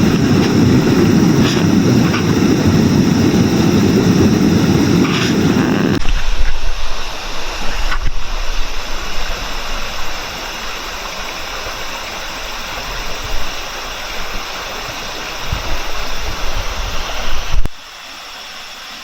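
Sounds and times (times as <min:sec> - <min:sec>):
low rumbles: 0:00.0 - 0:08.9.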